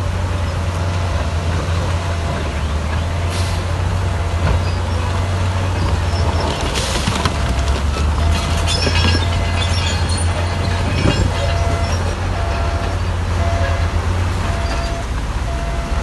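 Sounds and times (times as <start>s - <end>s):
diesel engine running under load: 0.0s - 16.0s
metallic clanking and squeaking: 4.2s - 15.2s
short beeps: 11.1s - 16.0s.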